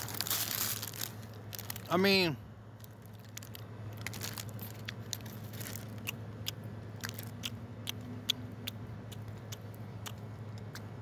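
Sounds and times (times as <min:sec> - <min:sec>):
steady low hum: 0:00.0 - 0:11.0
person chewing crunchy food: 0:02.9 - 0:11.0.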